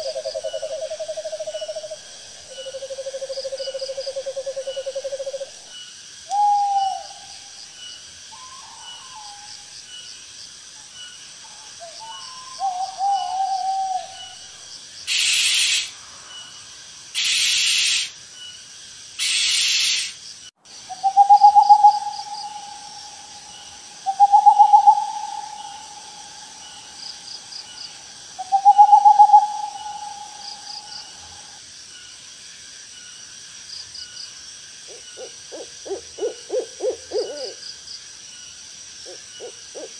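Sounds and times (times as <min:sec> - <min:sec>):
owl long hoots: 0:00.0 - 0:05.6, 0:06.3 - 0:07.3, 0:11.8 - 0:14.5, 0:15.1 - 0:16.0, 0:17.2 - 0:18.1, 0:19.2 - 0:20.1, 0:20.9 - 0:31.6, 0:34.9 - 0:37.6, 0:39.0 - 0:39.9
owl wavering calls: 0:00.0 - 0:05.6, 0:06.3 - 0:07.4, 0:08.3 - 0:09.6, 0:11.5 - 0:16.0, 0:17.2 - 0:18.1, 0:19.2 - 0:20.2, 0:20.9 - 0:27.7, 0:28.4 - 0:31.6, 0:34.9 - 0:37.6, 0:39.0 - 0:39.9
insects chirping: 0:00.0 - 0:39.9
owl hissing screeches: 0:15.1 - 0:16.0, 0:17.1 - 0:18.2, 0:19.2 - 0:20.2.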